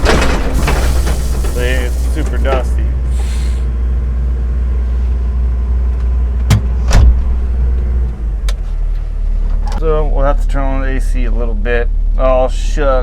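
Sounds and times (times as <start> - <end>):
excavator diesel engine running: 0.0 - 6.4.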